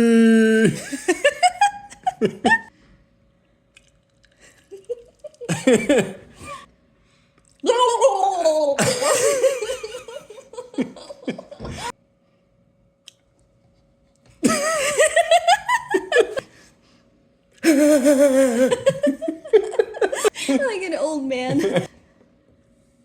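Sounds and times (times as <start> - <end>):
people laughing hard: 0.8 - 2.7, 5.5 - 6.6, 8.8 - 11.9, 14.4 - 16.4, 17.6 - 20.6.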